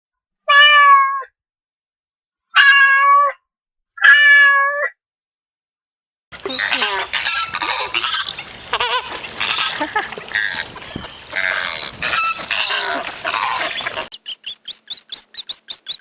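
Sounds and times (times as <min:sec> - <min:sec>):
cat meowing: 0:02.6 - 0:03.4
wavering animal calls: 0:06.4 - 0:16.0.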